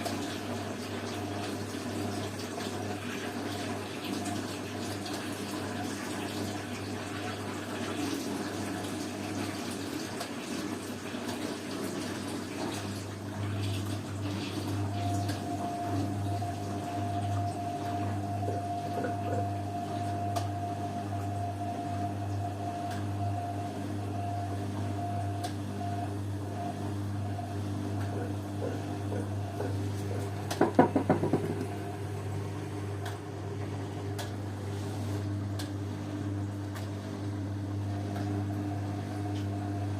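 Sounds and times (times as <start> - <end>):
low mains hum: 0.0 - 39.9
washing machine filling with water: 0.0 - 39.9
thin steady whine: 14.8 - 33.0.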